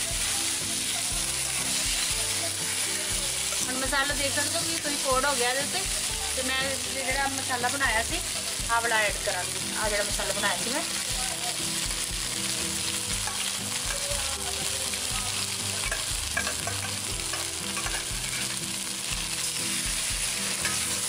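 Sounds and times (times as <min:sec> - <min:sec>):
food sizzling in hot oil: 0:00.0 - 0:21.0
metal ladle scraping a pan: 0:00.2 - 0:06.8, 0:15.7 - 0:21.0.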